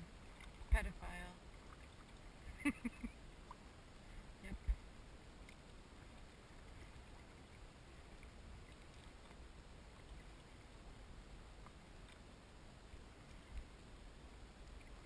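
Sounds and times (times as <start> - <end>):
faint background hiss: 0.0 - 15.0
tiny faint ticks: 4.5 - 10.6, 11.5 - 15.0.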